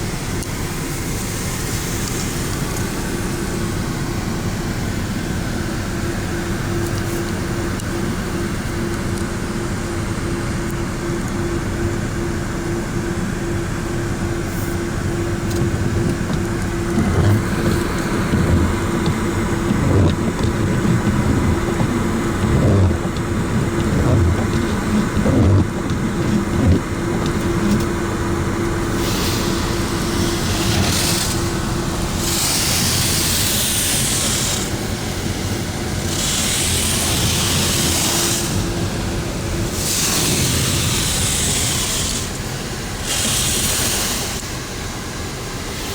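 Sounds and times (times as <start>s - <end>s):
pump hum: 0.0s - 45.9s
water spray rushing: 28.8s - 44.6s.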